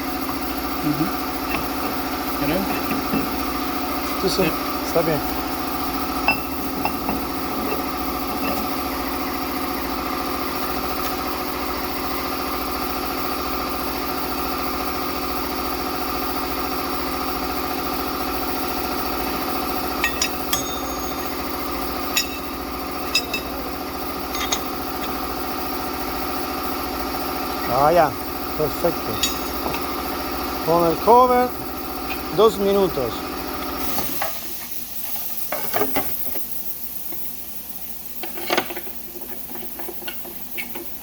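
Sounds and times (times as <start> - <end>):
machinery hum: 0.0 - 35.6
metallic clicks and clinks: 20.0 - 21.4, 22.1 - 23.6, 24.3 - 25.2, 29.0 - 29.8.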